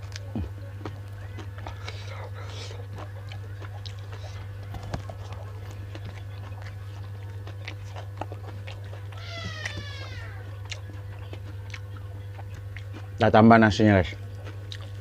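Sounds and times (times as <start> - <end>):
chewing with wet clicks: 0.0 - 15.0
cat meowing: 9.2 - 10.5.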